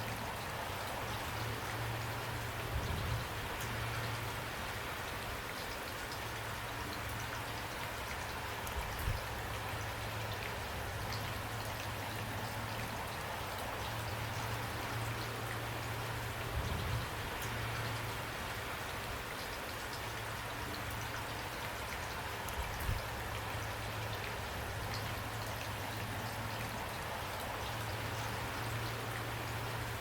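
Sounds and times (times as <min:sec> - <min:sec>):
steady rain: 0:00.0 - 0:30.0
raindrops ticking: 0:18.8 - 0:30.0.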